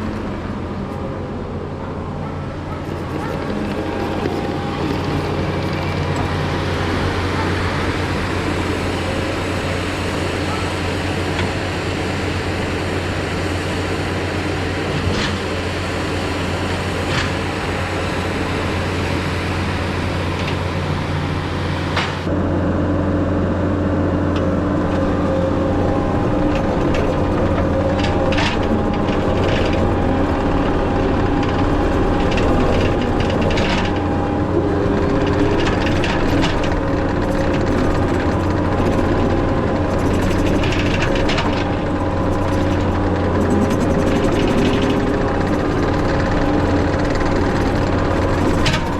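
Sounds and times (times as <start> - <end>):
skid steer engine running: 0.0 - 48.9
steady whine: 0.0 - 48.9
knocks and clanks: 24.4 - 48.9.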